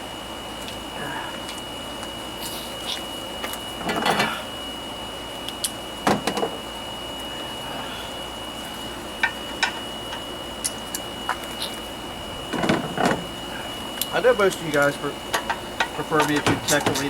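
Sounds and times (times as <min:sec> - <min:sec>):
metal parts clinking and knocking: 0:15.3 - 0:17.0.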